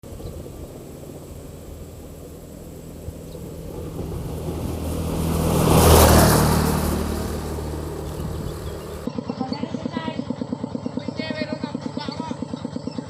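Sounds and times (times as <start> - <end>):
vehicle engine driving past: 0.0 - 9.1.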